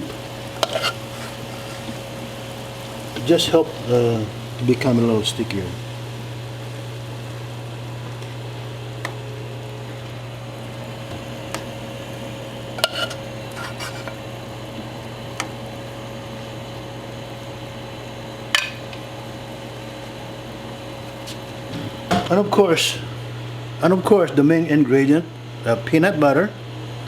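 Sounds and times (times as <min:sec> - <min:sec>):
steady low hum: 0:00.0 - 0:27.0
utensil clinking against pot: 0:12.8 - 0:14.2.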